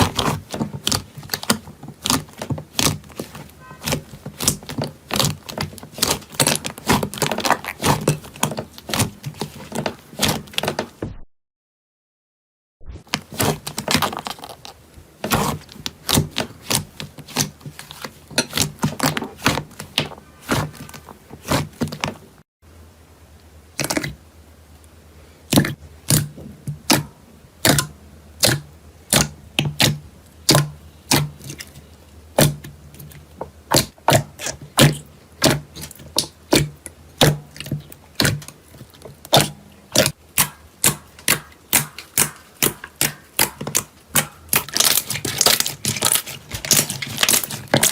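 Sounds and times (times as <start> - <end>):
slime crackling and popping: 0.0 - 10.7, 13.1 - 21.9, 33.7 - 47.9.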